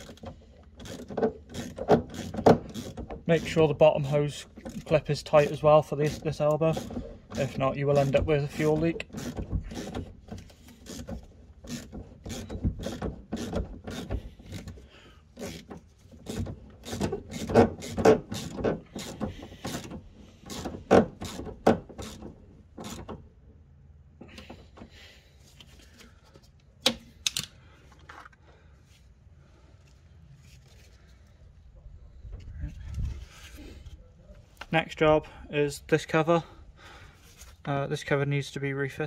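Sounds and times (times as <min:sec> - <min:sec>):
hand ratchet clicking: 0:00.0 - 0:03.6, 0:04.6 - 0:14.8, 0:15.4 - 0:23.1.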